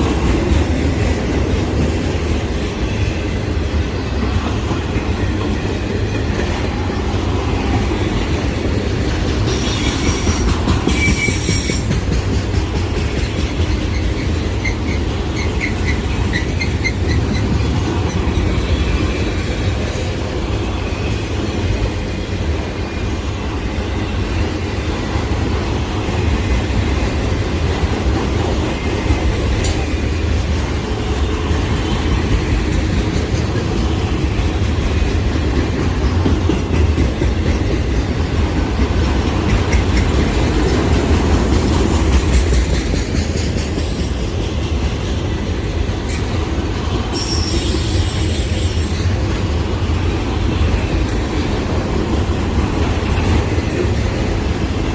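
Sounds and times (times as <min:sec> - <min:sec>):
train wheels rumbling on rails: 0:00.0 - 0:54.9
high wheel squeal: 0:09.5 - 0:11.9, 0:47.1 - 0:49.1.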